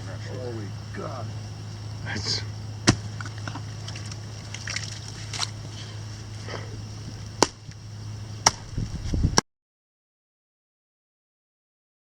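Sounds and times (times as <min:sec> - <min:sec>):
low steady hum: 0:00.0 - 0:09.4
sharp knocks: 0:02.8 - 0:03.3, 0:07.4 - 0:07.7, 0:08.4 - 0:08.7.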